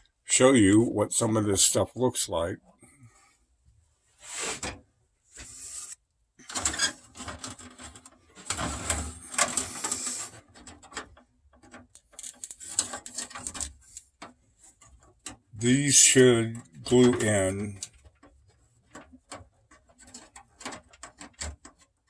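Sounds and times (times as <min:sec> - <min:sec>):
plastic parts clicking: 0:06.5 - 0:15.4, 0:16.6 - 0:22.0.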